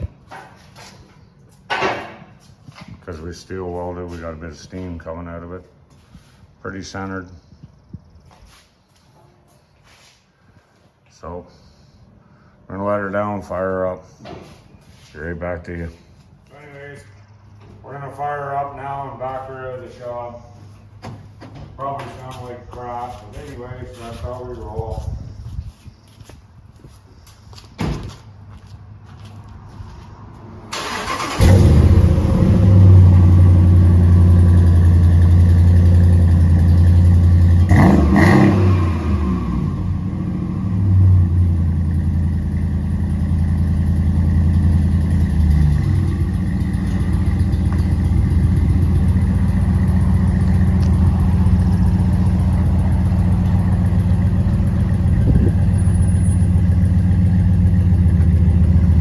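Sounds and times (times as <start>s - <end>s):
engine cranking and starting: 30.7s - 33.0s
engine revving: 30.7s - 42.6s
car engine running loud: 31.1s - 59.0s.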